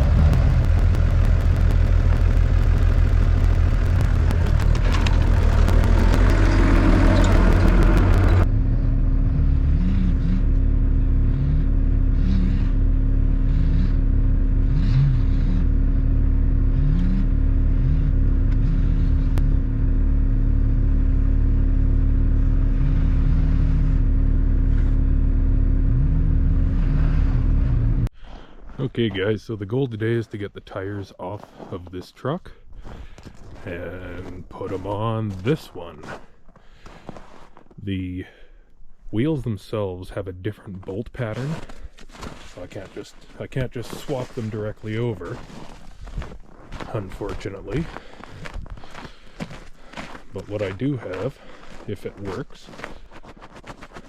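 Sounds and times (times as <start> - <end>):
heavy vehicle engine running: 0.0 - 28.1, 41.5 - 53.1.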